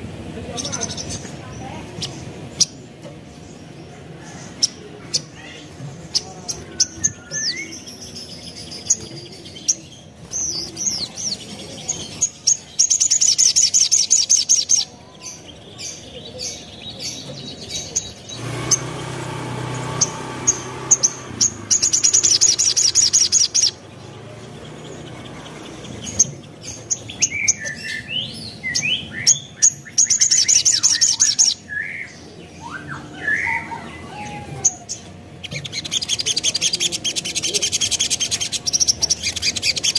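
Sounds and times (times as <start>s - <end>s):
bird rapid high trill: 18.3s - 23.8s.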